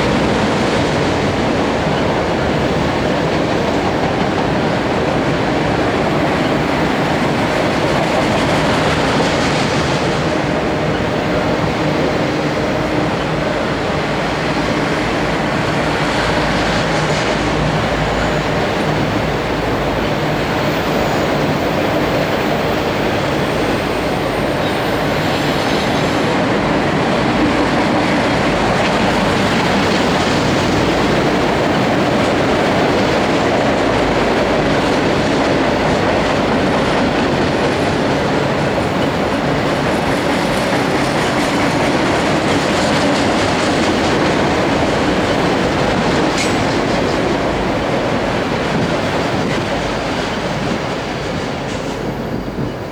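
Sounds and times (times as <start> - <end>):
freight train cars rolling: 0.0 - 52.9
wheels clicking over rail joints: 0.0 - 52.9
faint high wheel squeal: 17.8 - 26.3.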